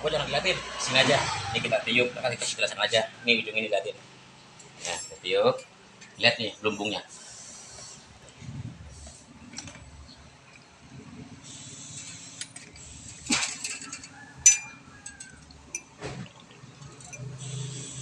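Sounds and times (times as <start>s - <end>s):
air hissing through tubing: 7.1s - 9.4s, 11.3s - 14.0s, 17.4s - 18.0s
metal parts clinking: 12.0s - 16.0s.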